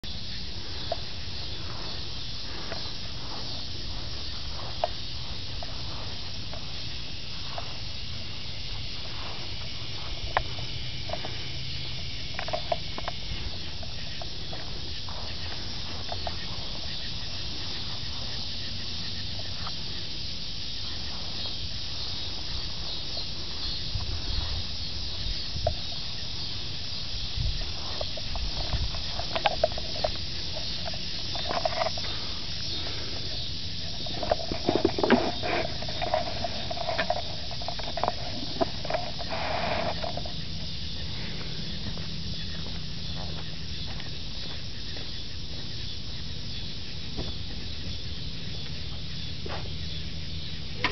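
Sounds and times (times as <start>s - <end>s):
constant hiss: 0.0s - 50.9s.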